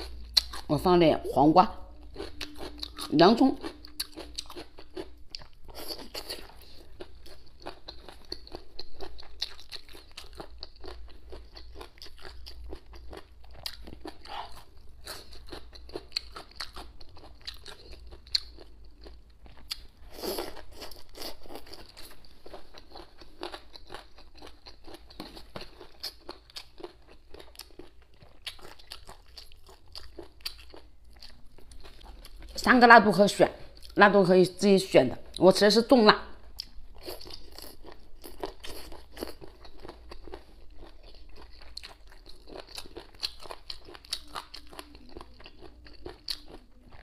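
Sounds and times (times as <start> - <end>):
chewing and crunching: 0.0 - 0.8, 2.0 - 32.7, 36.5 - 47.0.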